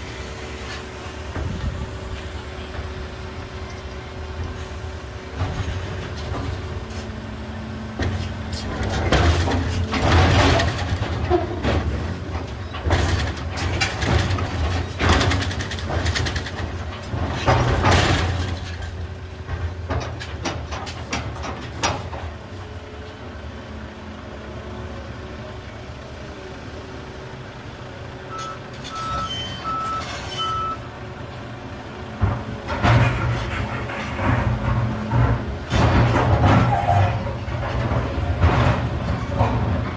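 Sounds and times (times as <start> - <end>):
excavator diesel engine: 0.0 - 39.9
backup alarm beeping: 28.3 - 30.8.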